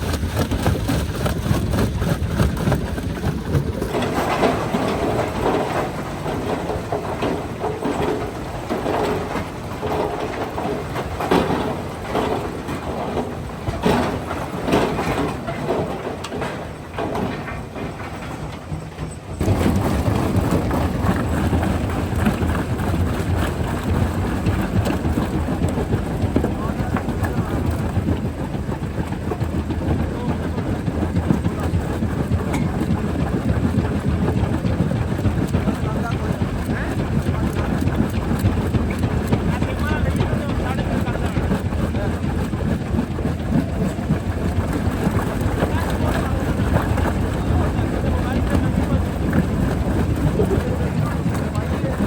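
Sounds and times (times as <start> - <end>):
rock crusher rumbling and clattering: 0.0 - 52.0
voices: 19.4 - 52.0.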